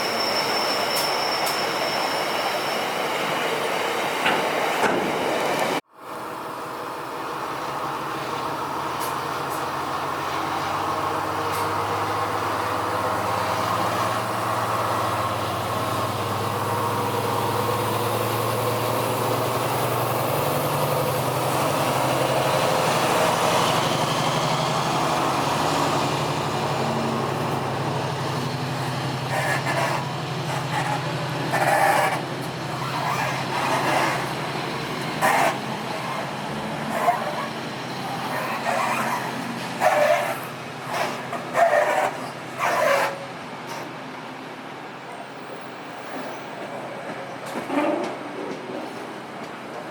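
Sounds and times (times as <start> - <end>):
train rumble: 43.2 - 49.9.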